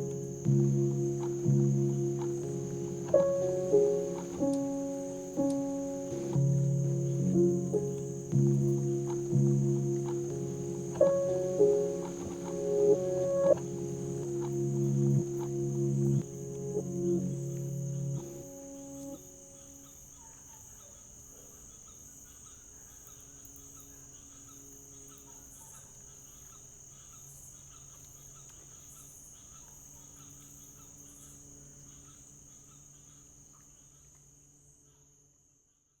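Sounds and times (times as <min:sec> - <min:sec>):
faint low hum: 0:00.0 - 0:20.6
insects chirring: 0:00.0 - 0:35.0.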